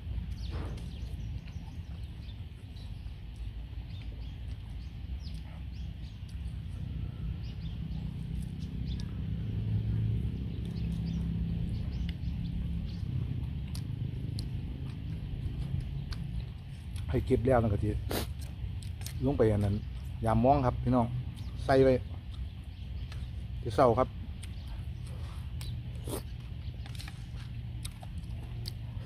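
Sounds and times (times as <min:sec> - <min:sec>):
low rumble: 0:00.0 - 0:19.2
man chewing wetly: 0:00.0 - 0:20.2, 0:21.2 - 0:29.0
lip-smacking clicks: 0:24.4 - 0:27.2.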